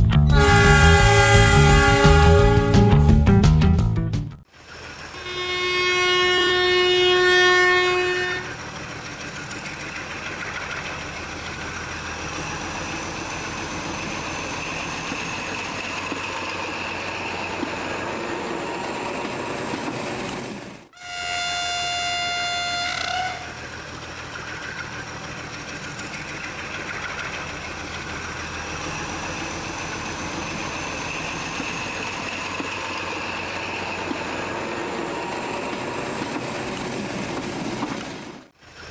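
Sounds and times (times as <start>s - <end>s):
train rumbling on rails: 0.0s - 4.0s, 8.2s - 20.9s, 23.3s - 38.9s
train horn: 0.2s - 3.6s, 5.1s - 8.6s, 21.0s - 23.7s.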